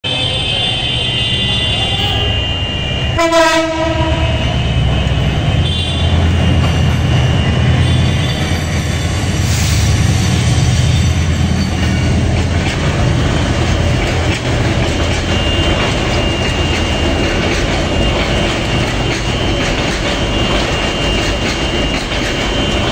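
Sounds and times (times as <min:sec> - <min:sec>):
train rumbling: 0:00.0 - 0:22.9
wheels clattering over rails: 0:10.6 - 0:22.9.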